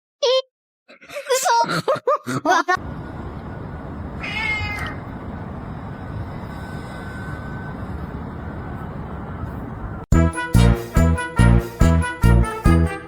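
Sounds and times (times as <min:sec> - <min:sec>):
low background rumble: 0:02.8 - 0:10.1
cat meowing: 0:04.0 - 0:05.1.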